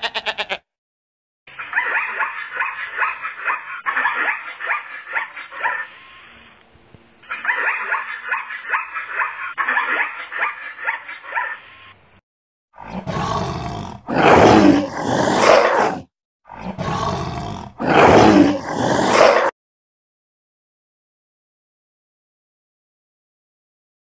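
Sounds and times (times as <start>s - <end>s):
tiger roaring: 12.8s - 19.5s.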